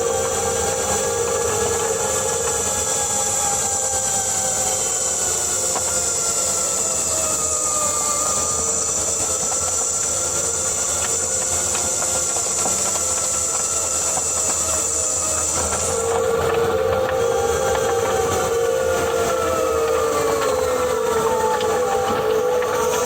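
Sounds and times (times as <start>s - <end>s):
transmission gear whine: 0.0s - 23.0s.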